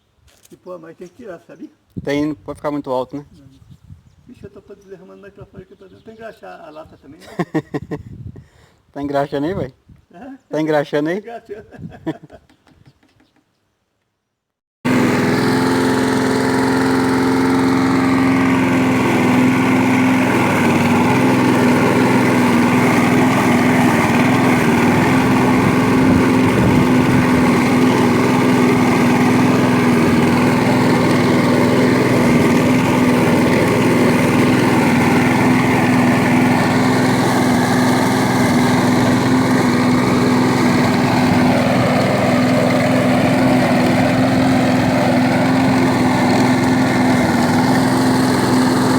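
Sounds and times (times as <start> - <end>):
lawn mower engine running: 14.8 - 48.9.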